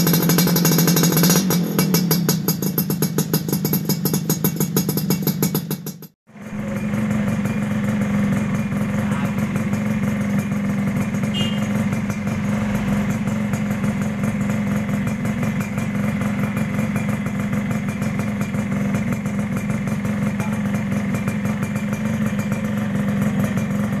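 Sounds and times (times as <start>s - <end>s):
two-stroke motorcycle idling: 0.0s - 24.0s.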